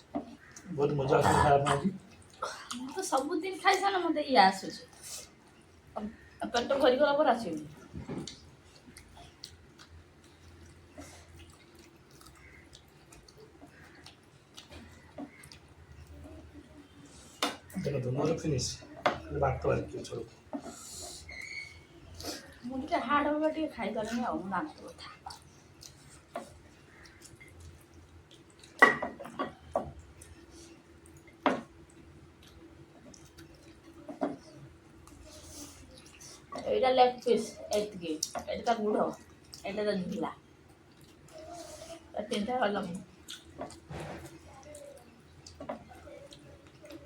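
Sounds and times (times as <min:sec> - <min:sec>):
chewing: 0:00.0 - 0:03.9, 0:04.8 - 0:47.0
dishes clinking: 0:28.8 - 0:29.6.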